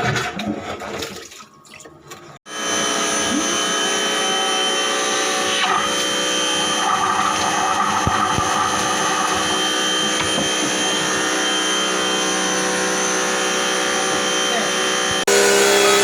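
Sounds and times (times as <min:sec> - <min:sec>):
power tool motor running: 0:02.5 - 0:16.0.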